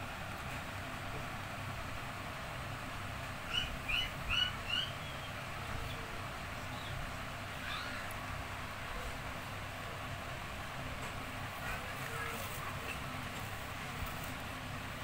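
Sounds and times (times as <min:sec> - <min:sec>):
steady background hiss: 0:00.0 - 0:15.0
high bird chirps: 0:03.5 - 0:06.0.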